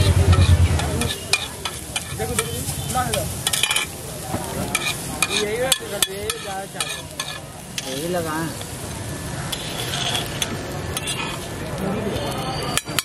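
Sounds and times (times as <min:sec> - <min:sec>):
utensil scraping a pan: 0:00.0 - 0:04.0, 0:04.6 - 0:08.7, 0:09.4 - 0:13.0
food sizzling in a pan: 0:00.0 - 0:13.0
metal clicking against pan: 0:00.3 - 0:02.5, 0:04.7 - 0:08.7, 0:12.2 - 0:13.0.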